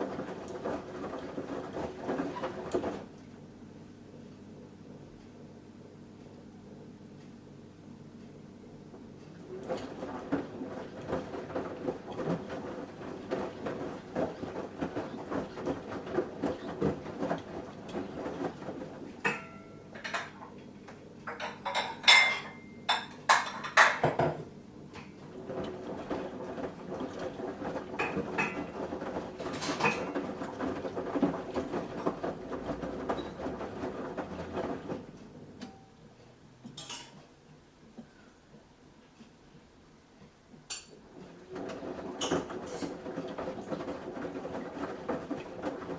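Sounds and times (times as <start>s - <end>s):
washing machine drum swishing: 0.0s - 3.1s, 9.5s - 19.3s, 25.2s - 35.5s, 41.0s - 45.9s.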